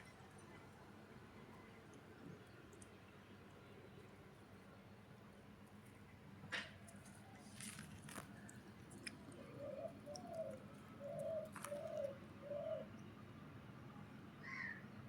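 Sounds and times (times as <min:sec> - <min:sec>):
pigeon cooing faintly: 0:08.3 - 0:13.0.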